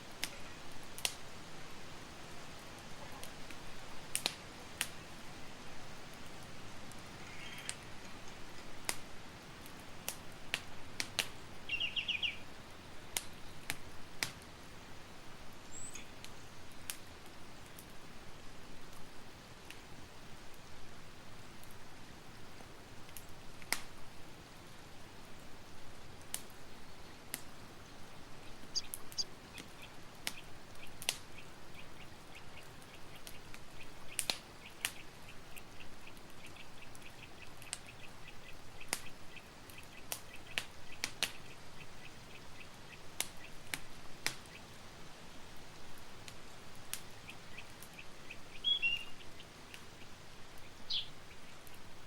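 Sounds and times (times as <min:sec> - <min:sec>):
campfire crackling: 0:00.0 - 0:52.0
steady hiss: 0:00.0 - 0:52.0
high-pitched chirping trill: 0:28.7 - 0:29.3.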